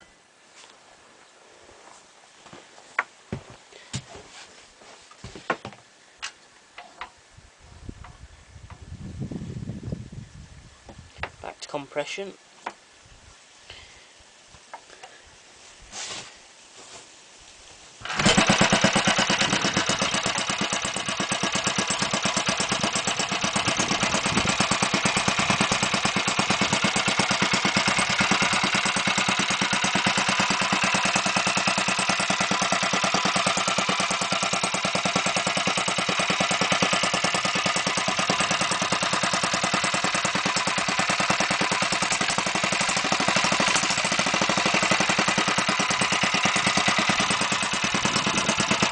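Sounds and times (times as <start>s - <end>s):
single-cylinder engine running: 18.0s - 48.9s.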